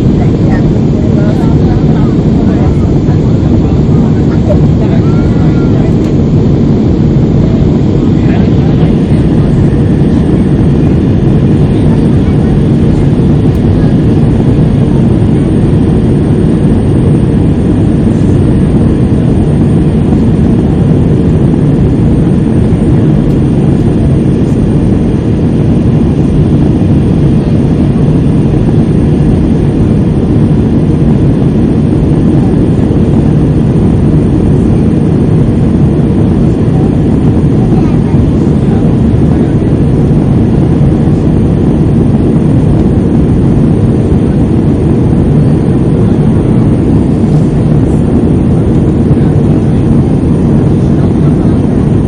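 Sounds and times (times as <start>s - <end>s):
jet engines and rushing air in cabin: 0.0s - 52.0s.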